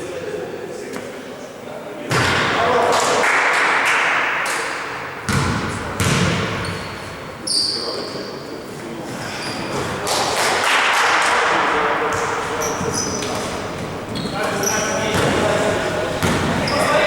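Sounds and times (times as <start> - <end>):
basketball bouncing on floor: 5.3 - 6.5, 16.2 - 16.6.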